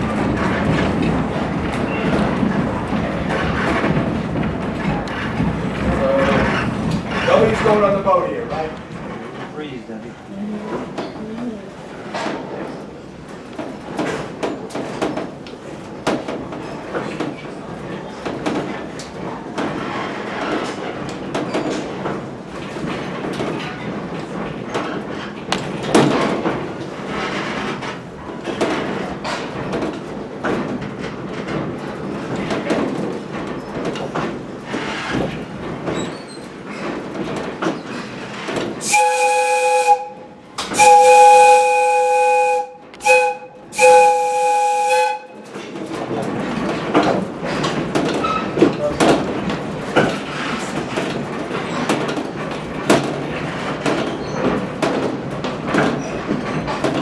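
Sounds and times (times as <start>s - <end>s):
train coach clattering over rails: 0.0s - 11.2s, 11.8s - 57.0s
steam whistle blasts: 38.8s - 45.4s.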